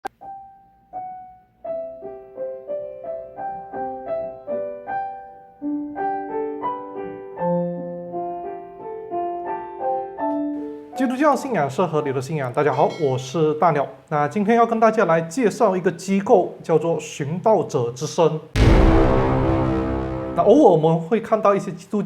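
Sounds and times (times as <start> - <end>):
gentle piano melody: 0.2 - 11.2.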